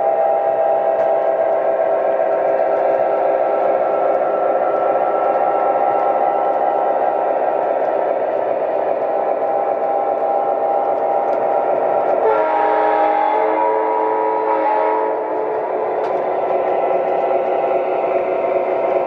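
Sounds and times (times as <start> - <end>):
model train humming on track: 0.0 - 19.0
electronic train horn blast: 12.1 - 15.3.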